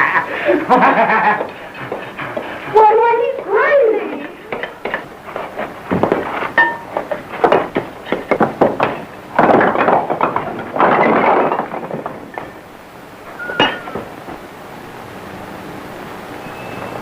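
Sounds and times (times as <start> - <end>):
rough crashing noises: 4.2 - 14.4
knocks and thuds: 4.5 - 12.6.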